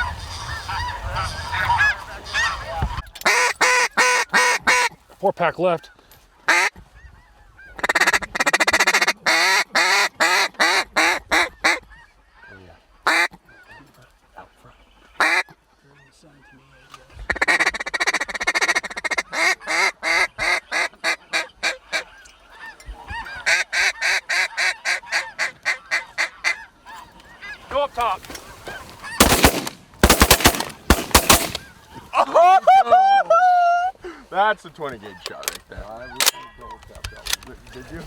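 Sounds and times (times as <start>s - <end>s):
geese honking: 0.0s - 4.9s, 7.6s - 32.8s.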